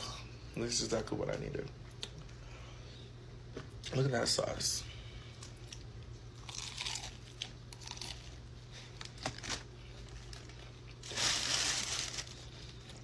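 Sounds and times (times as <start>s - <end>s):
steady low hum: 0.0s - 13.0s
fried chicken and packaging crinkling: 6.4s - 13.0s.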